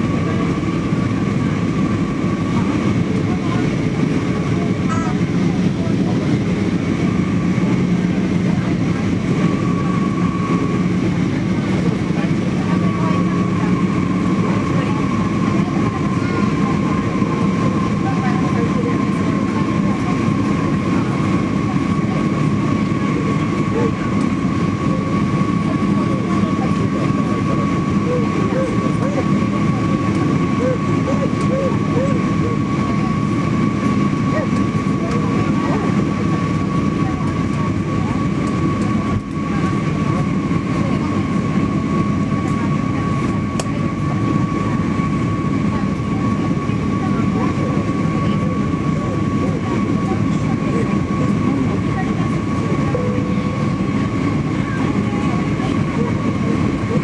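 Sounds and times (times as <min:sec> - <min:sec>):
airliner cabin engine rumble: 0:00.0 - 0:57.0.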